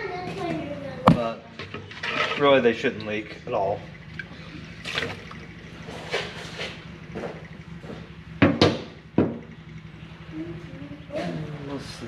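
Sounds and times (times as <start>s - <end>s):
steady low hum: 0.0s - 12.0s
liquid splashing and pouring: 1.9s - 7.6s
sharp knocks: 8.4s - 9.5s.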